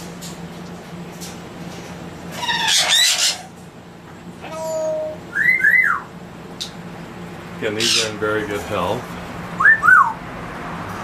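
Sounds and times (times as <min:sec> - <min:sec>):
parrots squawking and whistling: 0:02.3 - 0:03.6, 0:04.4 - 0:06.1, 0:07.7 - 0:08.2, 0:09.6 - 0:10.2.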